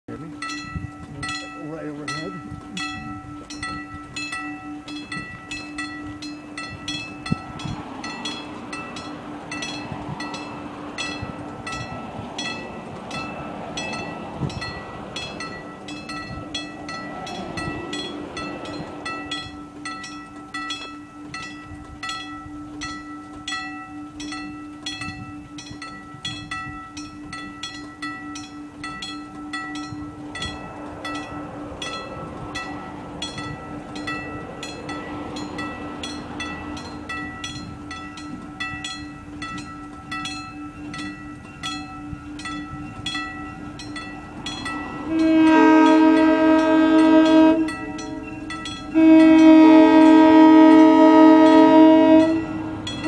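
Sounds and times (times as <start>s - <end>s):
railroad crossing bell ringing: 0.1s - 53.0s
locomotive air horn blasts: 44.9s - 53.0s.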